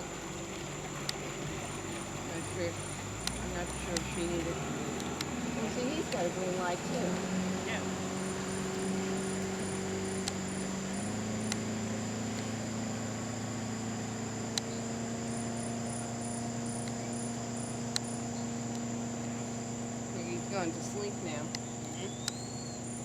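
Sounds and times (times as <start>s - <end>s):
insect rhythmic chirps: 0.0s - 23.0s
insects droning: 0.0s - 23.0s
low steady hum: 0.0s - 23.0s
sharp clicks: 3.2s - 6.3s, 9.4s - 10.6s, 11.4s - 11.7s, 14.5s - 14.8s, 21.4s - 22.6s.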